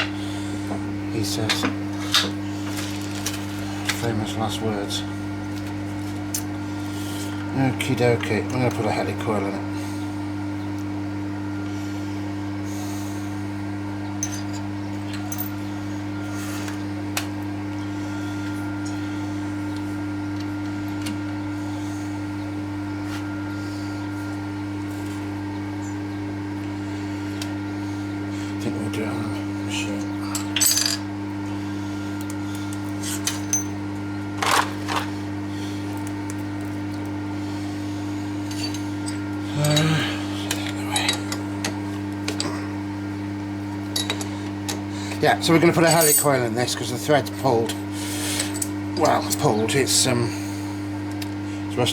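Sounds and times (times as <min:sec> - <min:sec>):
low electrical hum: 0:00.0 - 0:51.9
tools clattering: 0:30.3 - 0:31.0, 0:34.4 - 0:35.1, 0:43.9 - 0:44.4.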